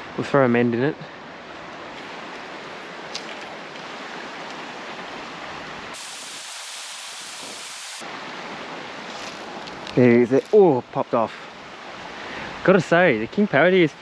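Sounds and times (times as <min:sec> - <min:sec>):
creek flowing: 0:06.0 - 0:08.0
harsh hiss: 0:06.0 - 0:08.0.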